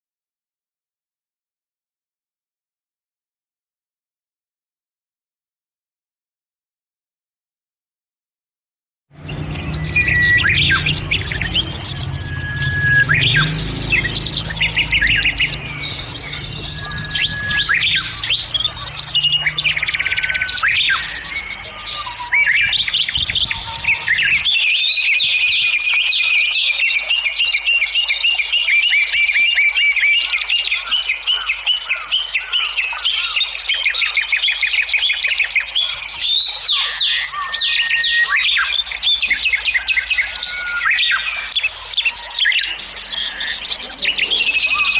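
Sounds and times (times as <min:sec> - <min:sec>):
birds chirping and singing: 0:09.2 - 0:44.9.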